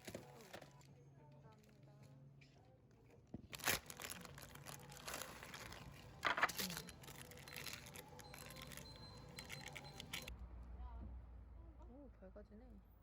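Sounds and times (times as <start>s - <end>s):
rustling and crinkling handling: 0.0s - 2.2s, 3.3s - 10.3s.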